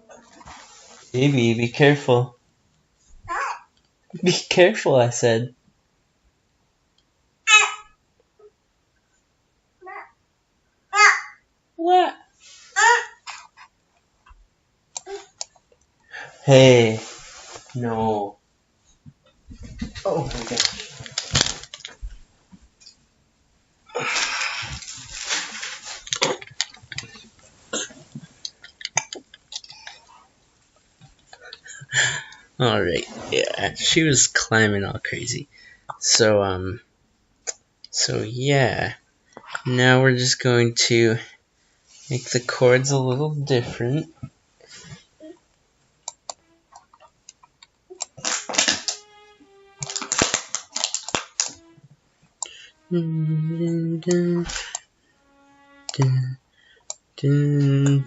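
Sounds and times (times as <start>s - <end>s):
loud rustling handling noise: 19.5s - 22.3s, 24.0s - 28.4s, 48.0s - 51.7s.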